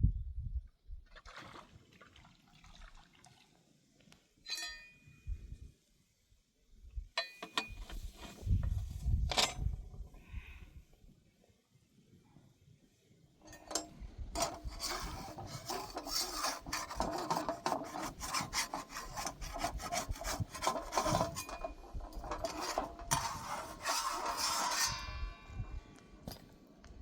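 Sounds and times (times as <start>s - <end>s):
rapid scraping and rubbing: 14.4s - 25.4s.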